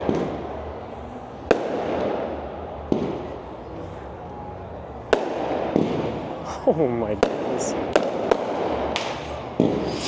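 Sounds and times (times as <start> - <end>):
fireworks bangs with rolling echo: 0.0 - 0.5, 1.5 - 3.4, 5.1 - 6.2, 7.2 - 10.0
rumble of distant fireworks bursts: 0.0 - 10.0.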